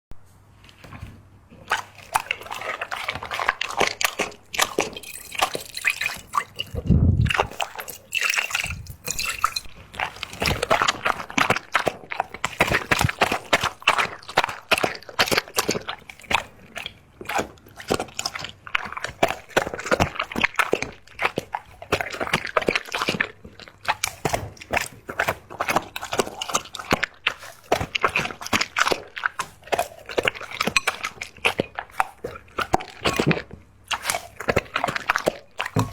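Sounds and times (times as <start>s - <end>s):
dog lapping liquid: 0.7s - 35.9s
low thud: 6.8s - 7.3s.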